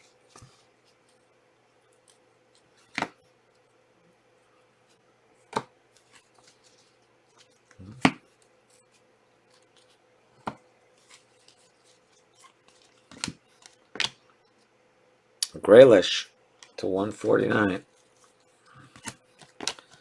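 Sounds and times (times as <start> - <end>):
cards tapping and clicking: 2.9 - 3.2, 12.7 - 14.2, 18.9 - 20.0
faint packaging rustling: 5.9 - 14.8, 16.6 - 20.0.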